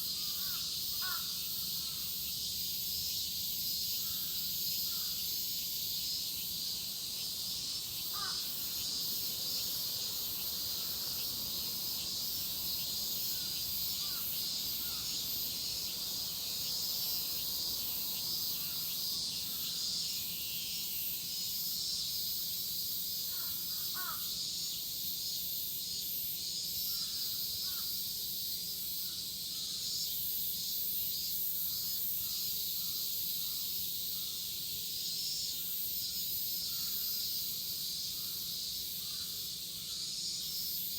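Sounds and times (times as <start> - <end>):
cicadas droning: 0.0 - 40.9
crows cawing: 0.2 - 2.0, 8.1 - 8.6, 13.3 - 15.2, 23.3 - 24.3.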